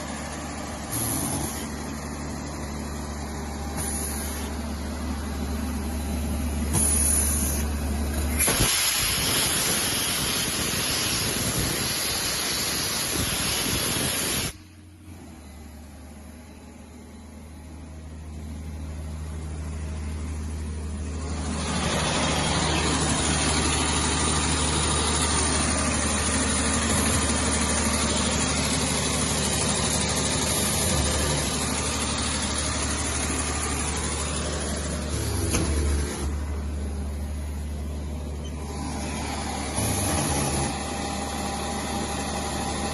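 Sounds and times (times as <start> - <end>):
compressor running: 0.0 - 42.9
compressed air hissing: 3.7 - 4.6, 6.7 - 7.7, 8.3 - 14.6.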